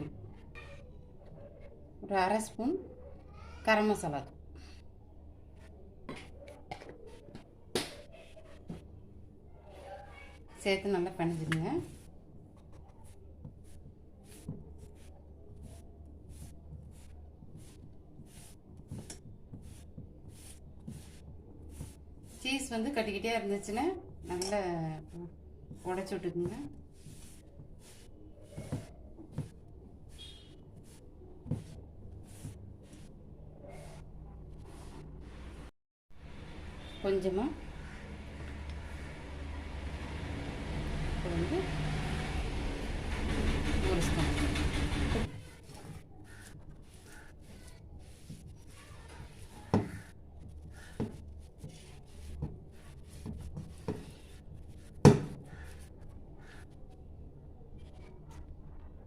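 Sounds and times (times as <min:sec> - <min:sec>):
rubbing and scraping dough: 0:09.6 - 0:35.7, 0:41.4 - 0:59.0.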